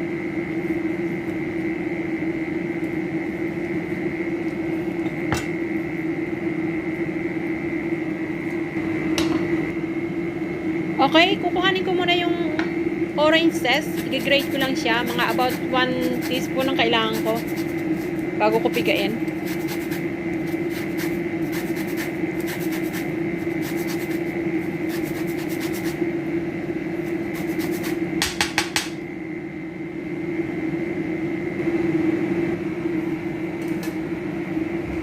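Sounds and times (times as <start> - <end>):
steady background hum: 0.0 - 35.0
orange peel scraping on grater: 13.5 - 26.0, 27.1 - 28.0.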